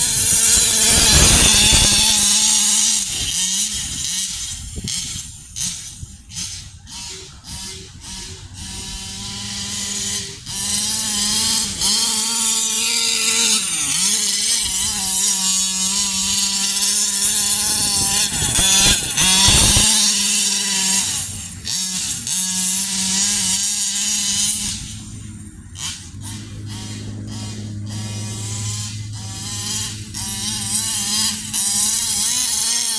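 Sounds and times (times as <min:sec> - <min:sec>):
two-stroke engine revving: 0:00.0 - 0:32.9.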